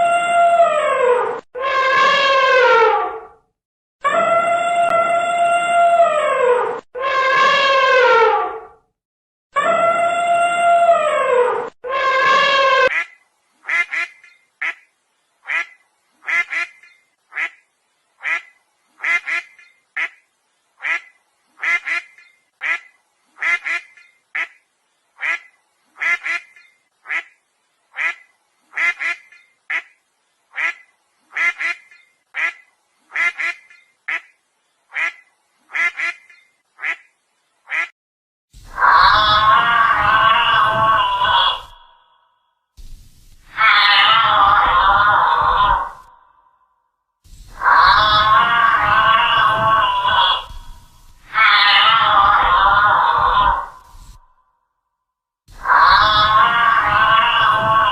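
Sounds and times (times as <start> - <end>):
duck quacking: 12.9 - 17.6, 18.2 - 20.2, 20.8 - 24.6, 25.2 - 27.4, 28.0 - 37.1, 37.7 - 37.9.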